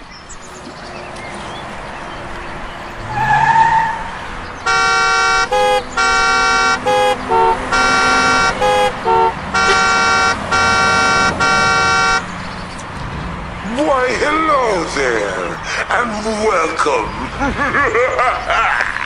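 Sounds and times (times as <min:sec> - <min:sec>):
musical vehicle horn honking: 0:04.6 - 0:12.3.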